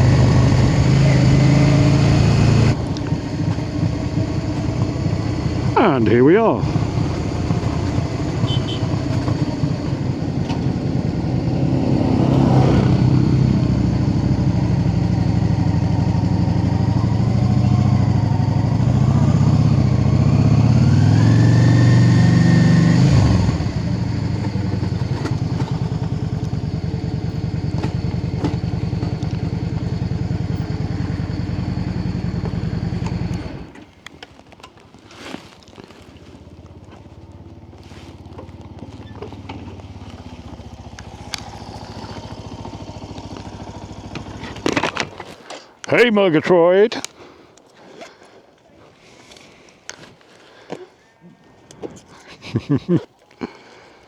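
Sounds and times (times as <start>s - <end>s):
motorcycle engine revving and idling: 0.0s - 46.0s
clicks: 40.9s - 42.3s.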